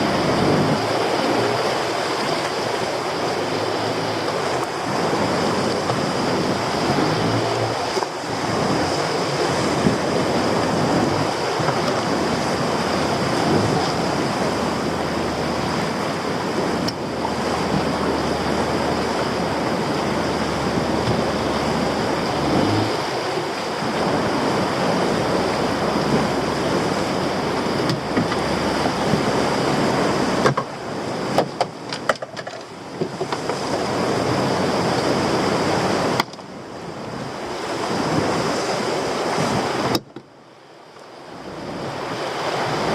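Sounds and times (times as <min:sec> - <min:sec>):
sea swell breaking: 0:00.0 - 0:31.4
wind on microphone: 0:00.0 - 0:32.0, 0:32.6 - 0:40.2
boat engine running low: 0:00.0 - 0:42.9.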